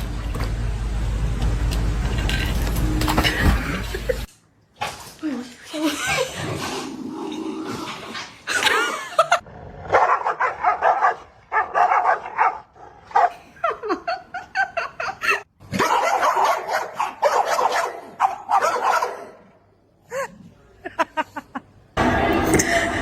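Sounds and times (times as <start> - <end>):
dog barking and yipping: 9.9 - 13.4, 15.7 - 19.4.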